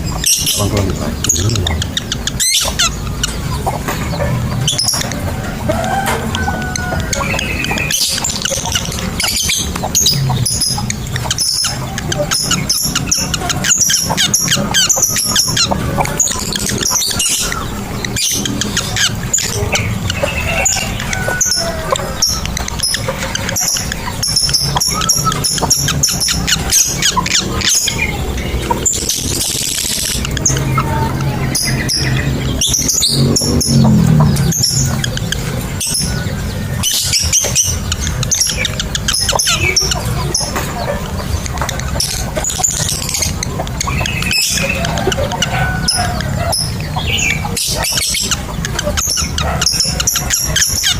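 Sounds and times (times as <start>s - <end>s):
lovebirds chirping: 0.0s - 50.9s.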